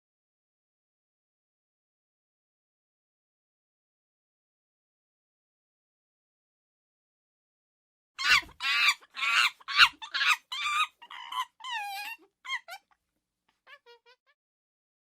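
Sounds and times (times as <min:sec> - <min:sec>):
short high squeaky animal calls: 0:08.2 - 0:12.8.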